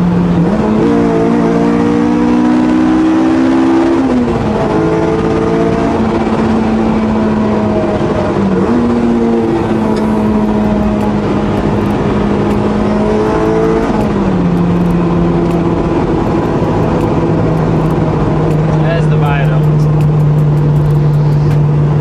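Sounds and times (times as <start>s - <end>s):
car engine driven hard: 0.0s - 21.9s.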